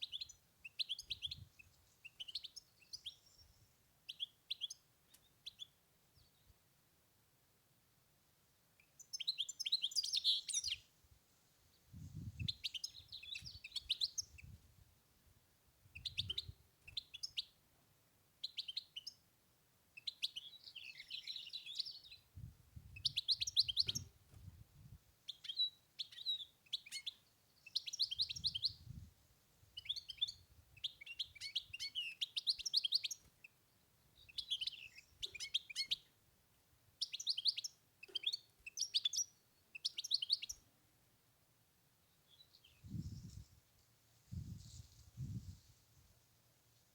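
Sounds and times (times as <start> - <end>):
goldfinch twittering song: 8.8 - 10.8, 12.4 - 14.4, 20.0 - 22.2, 23.0 - 24.1, 25.3 - 28.8, 29.8 - 33.5, 34.2 - 36.1, 37.0 - 40.6.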